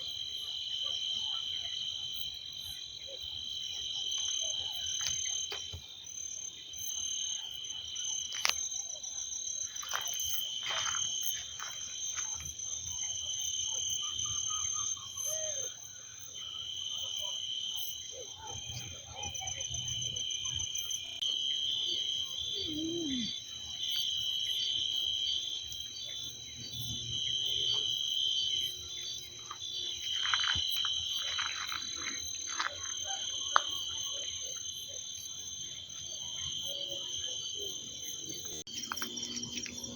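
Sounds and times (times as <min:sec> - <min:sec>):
insect trills: 0:17.7 - 0:39.9
short insect calls: 0:20.1 - 0:35.0, 0:35.9 - 0:39.9.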